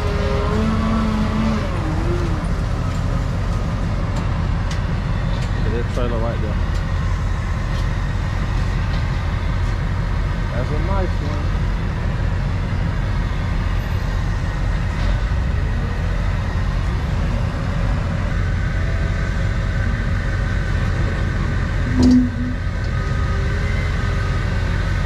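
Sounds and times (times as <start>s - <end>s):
truck engine rumbling: 0.0s - 25.0s
low tone with click: 21.8s - 23.0s.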